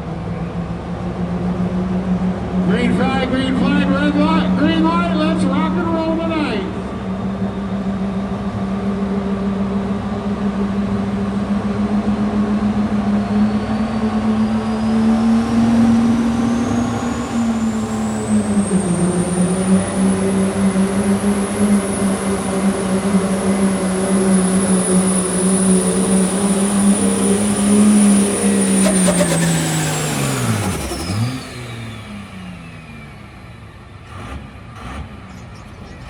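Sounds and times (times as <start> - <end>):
diesel truck engine under load: 0.0 - 36.0
high whine: 12.9 - 33.4.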